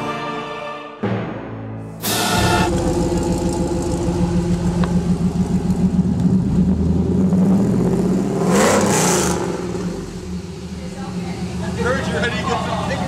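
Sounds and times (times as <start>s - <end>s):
short loud burst of noise: 2.0s - 3.2s
car engine idling: 2.4s - 13.0s.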